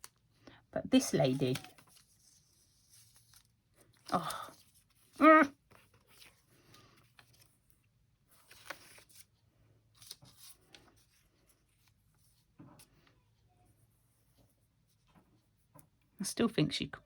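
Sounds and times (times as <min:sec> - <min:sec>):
paper rustling: 0:01.0 - 0:13.0.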